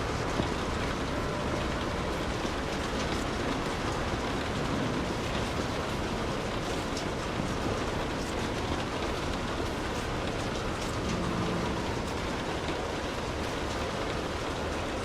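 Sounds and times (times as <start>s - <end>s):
rain hissing: 0.0s - 15.0s
raindrop ticks: 0.0s - 15.0s.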